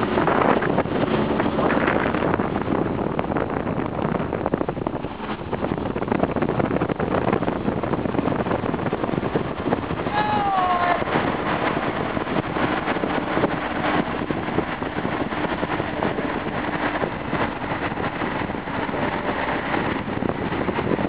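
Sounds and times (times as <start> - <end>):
car engines rolling slowly: 11.1 - 21.0.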